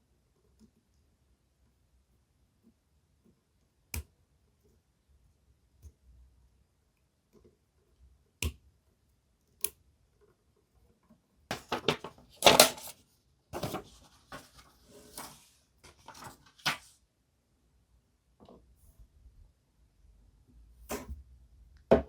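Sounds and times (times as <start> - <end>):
soft handling noises: 11.5 - 16.9.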